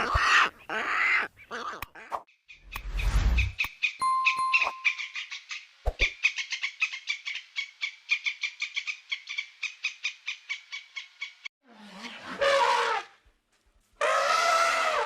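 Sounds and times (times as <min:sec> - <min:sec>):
animal chirping call: 0:03.6 - 0:11.4.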